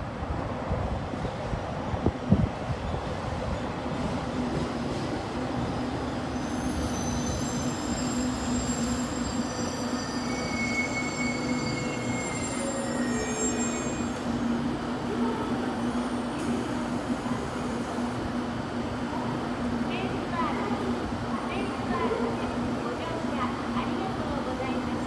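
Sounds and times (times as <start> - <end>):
wheels and brakes squealing: 6.2 - 14.5.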